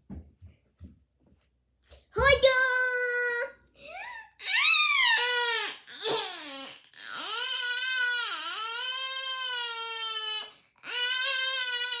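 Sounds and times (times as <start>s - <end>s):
child crying: 3.9s - 12.0s.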